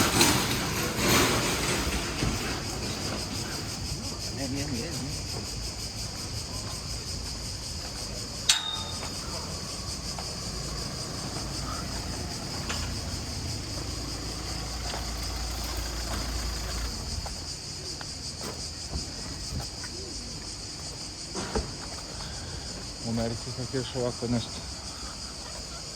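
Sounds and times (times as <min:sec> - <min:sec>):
high-pitched insect chorus: 0:00.0 - 0:25.9
sharp metallic clink: 0:08.4 - 0:13.2.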